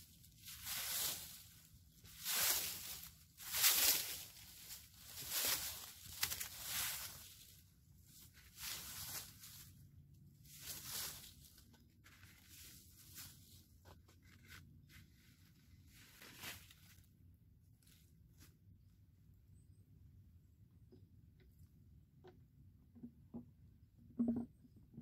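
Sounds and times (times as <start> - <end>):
footsteps crunching in dry leaves: 0.1 - 9.8, 10.4 - 13.6, 14.2 - 17.0
evergreen boughs rustling: 0.5 - 17.1.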